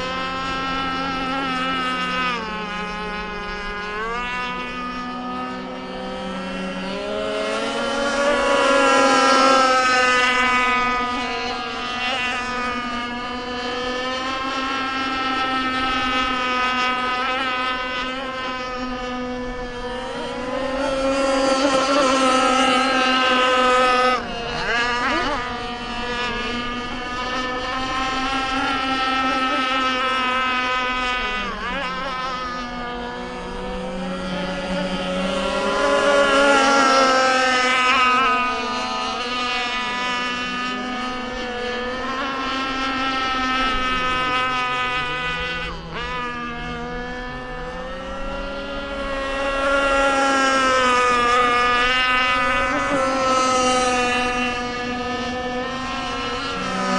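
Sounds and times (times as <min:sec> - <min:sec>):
rc boat motor high whine: 0:00.0 - 0:56.9.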